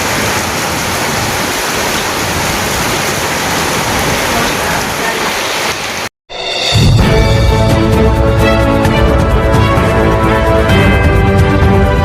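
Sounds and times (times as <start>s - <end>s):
torrential rain pouring: 0.0s - 6.1s
music: 6.3s - 12.0s.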